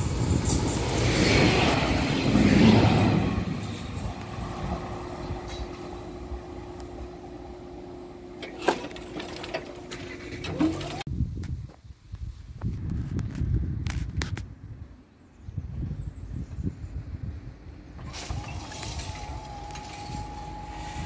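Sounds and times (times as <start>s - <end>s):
train rumbling past: 0.0s - 8.4s.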